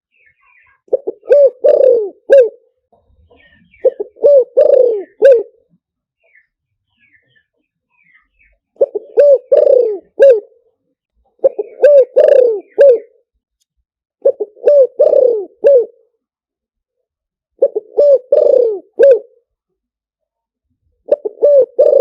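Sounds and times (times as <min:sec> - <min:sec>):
dove cooing: 0:00.5 - 0:02.7, 0:03.3 - 0:05.7, 0:08.8 - 0:10.6, 0:11.4 - 0:13.2, 0:14.2 - 0:16.1, 0:17.6 - 0:19.4, 0:21.0 - 0:22.0.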